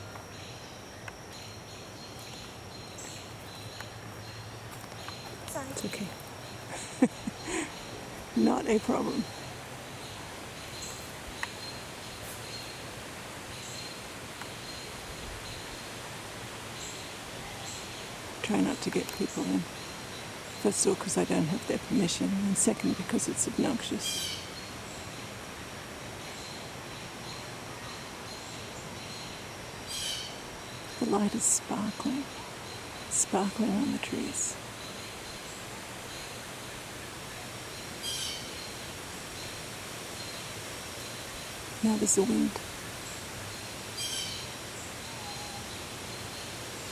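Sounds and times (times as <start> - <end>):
steady background hiss: 0.0 - 46.9.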